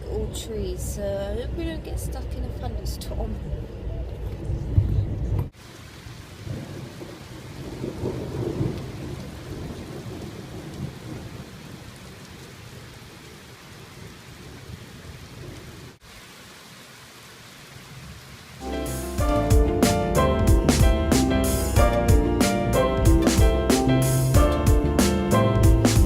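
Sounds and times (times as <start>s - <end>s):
rain falling: 5.5s - 26.0s
thunder rumbling: 6.3s - 11.8s, 18.6s - 26.0s.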